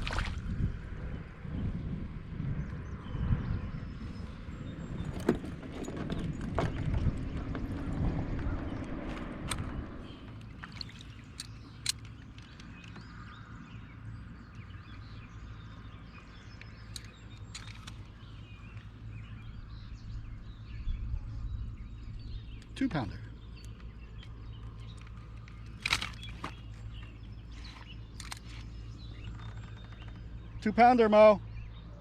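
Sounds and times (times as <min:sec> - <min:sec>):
kayak rumbling on water: 0:03.8 - 0:22.7
sharp clicks and knocks: 0:11.3 - 0:13.2.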